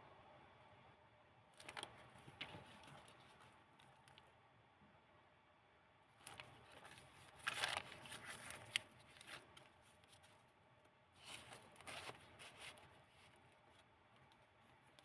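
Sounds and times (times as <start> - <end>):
paper pages rustling: 1.6 - 4.2, 6.2 - 10.6, 11.2 - 15.0.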